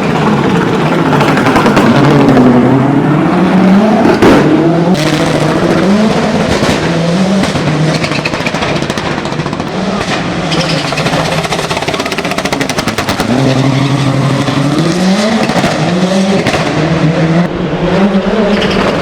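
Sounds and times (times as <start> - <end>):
car engine at full throttle: 0.0 - 19.0
sharp cracks: 6.3 - 13.4.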